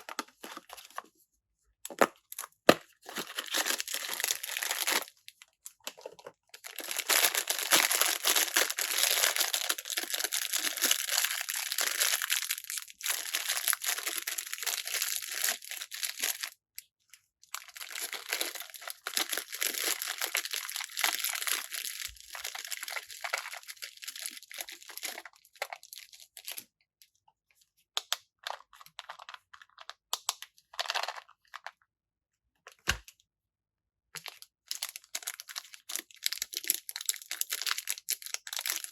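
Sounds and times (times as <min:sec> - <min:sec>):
packaging crinkling and tearing: 0:00.0 - 0:01.1, 0:01.9 - 0:16.5, 0:17.5 - 0:26.6, 0:34.2 - 0:38.9
small clicks and rustles of pieces: 0:28.0 - 0:31.8.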